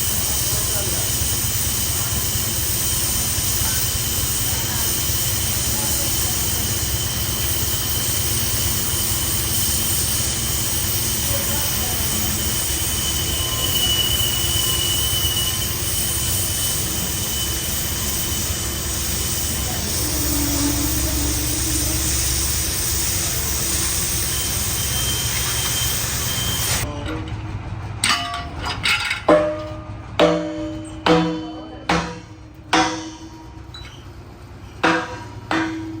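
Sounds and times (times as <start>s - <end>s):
high machine whine: 0.0s - 26.9s, 27.5s - 36.0s
boring machine humming: 0.0s - 36.0s
machine humming: 15.7s - 26.9s
hammer striking steel: 28.0s - 34.1s, 34.8s - 36.0s.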